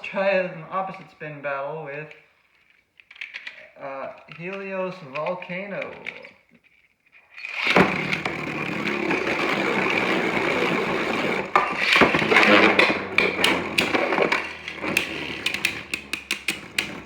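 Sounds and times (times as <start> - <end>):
spinning tops whirring and scraping: 7.3 - 17.0
spinning tops clacking: 7.4 - 17.0
spinning tops launched: 7.4 - 17.0.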